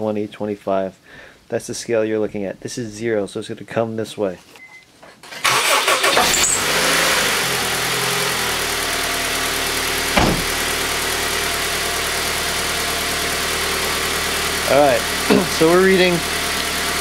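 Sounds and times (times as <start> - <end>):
car engine idling: 6.0 - 17.0.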